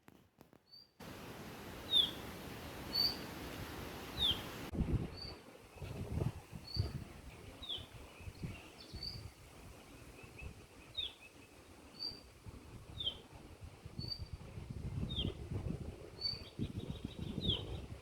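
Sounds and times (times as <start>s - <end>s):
songbirds chirping: 1.0s - 12.4s
bird trill: 1.9s - 2.2s, 2.9s - 3.3s, 4.2s - 4.5s.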